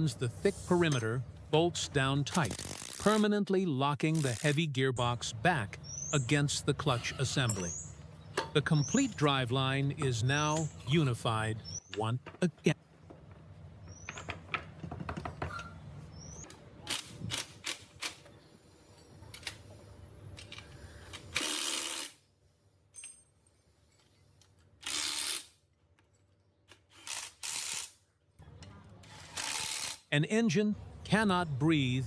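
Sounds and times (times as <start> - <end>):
metal tools clinking on engine parts: 0.8 - 1.2, 6.9 - 9.2, 10.0 - 11.0.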